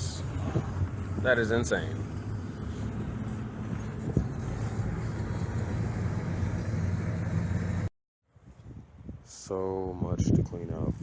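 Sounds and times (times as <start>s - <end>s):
car engine and road noise: 0.0s - 7.9s.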